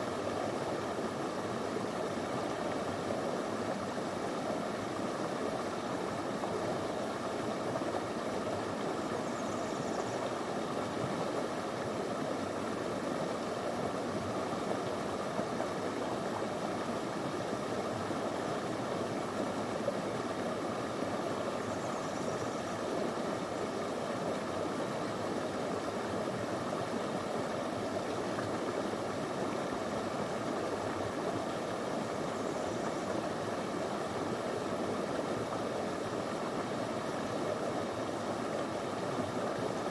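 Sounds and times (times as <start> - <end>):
river flowing over stones: 10.2 - 39.9.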